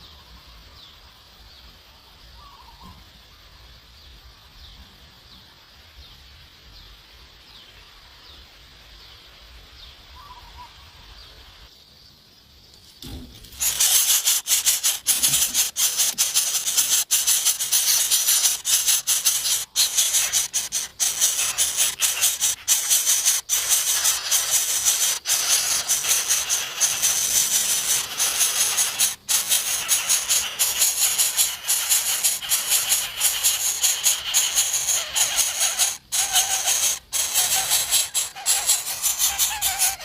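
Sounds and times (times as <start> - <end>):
loud dense rattling hiss: 13.0 - 40.0
faint high chirps: 13.6 - 40.0.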